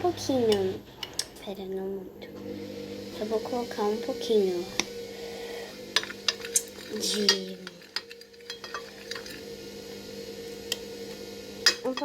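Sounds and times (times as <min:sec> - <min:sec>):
steady low hum: 0:00.0 - 0:12.0
spoon clinking against dish: 0:08.0 - 0:09.3.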